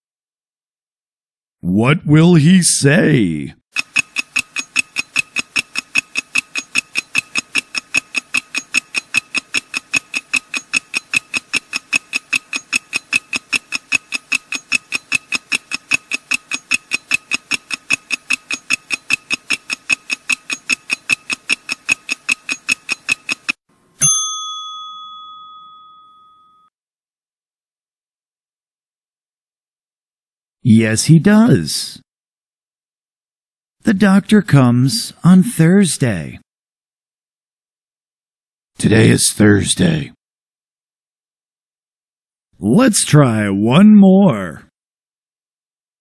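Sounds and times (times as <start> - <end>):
timer ticking: 3.8 - 23.6
bell ding: 24.0 - 26.7.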